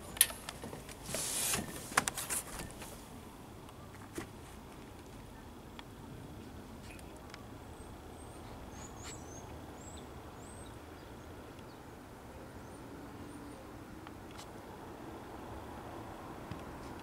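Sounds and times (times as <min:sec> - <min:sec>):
small birds chirping: 0:06.4 - 0:12.0.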